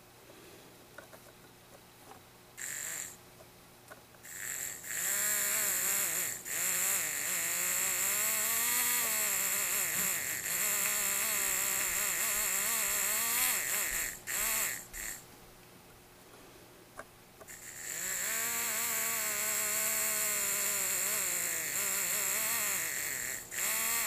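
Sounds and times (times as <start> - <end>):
servo motor whining: 17.5 - 24.0.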